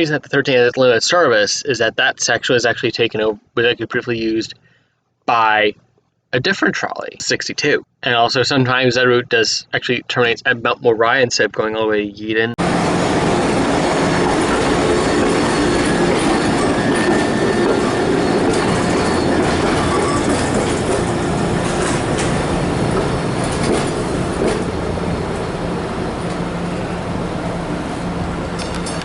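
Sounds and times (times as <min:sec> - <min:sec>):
low hum: 0:12.6 - 0:29.0
trolley wheels rumbling on rail: 0:12.6 - 0:29.0.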